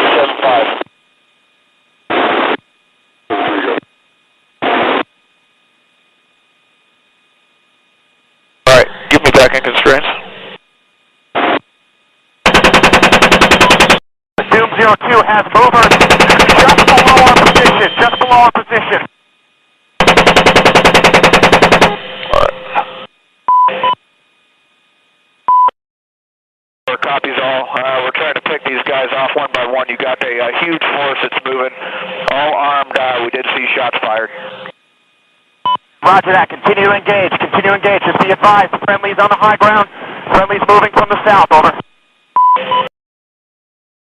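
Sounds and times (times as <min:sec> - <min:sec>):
radio hiss: 0:00.0 - 0:01.0, 0:02.1 - 0:02.6, 0:03.2 - 0:03.9, 0:04.6 - 0:05.1, 0:08.6 - 0:10.6, 0:14.4 - 0:19.2, 0:22.2 - 0:23.1, 0:26.9 - 0:34.7, 0:36.0 - 0:42.0
chain gun firing bursts: 0:12.5 - 0:14.0, 0:15.8 - 0:17.6, 0:20.0 - 0:22.0
brief beep tone: 0:23.5 - 0:24.0, 0:25.5 - 0:25.7, 0:42.4 - 0:42.9.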